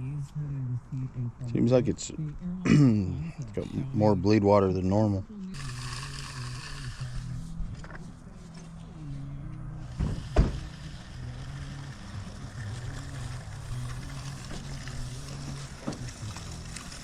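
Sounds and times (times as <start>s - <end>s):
small engine humming: 3.5s - 17.0s.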